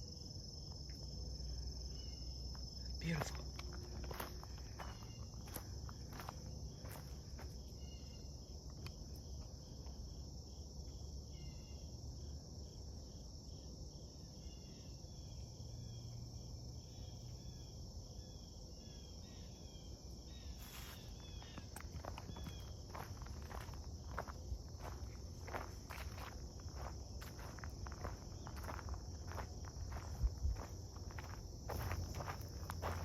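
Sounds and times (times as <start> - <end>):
insects droning: 0.0 - 33.0
footsteps crunching: 2.5 - 7.7, 20.6 - 33.0.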